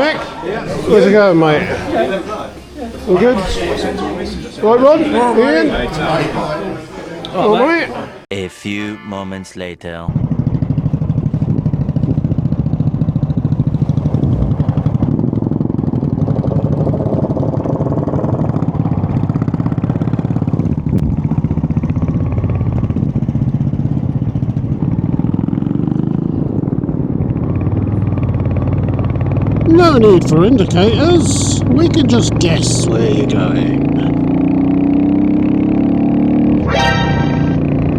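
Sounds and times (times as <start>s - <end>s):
motorcycle engine accelerating: 10.1s - 37.9s.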